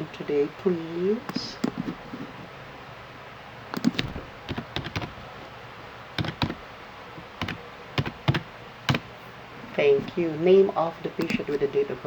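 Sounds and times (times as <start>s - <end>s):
computer keyboard typing: 1.6s - 2.0s, 3.8s - 5.2s, 6.2s - 6.6s, 7.4s - 9.1s, 11.2s - 11.6s.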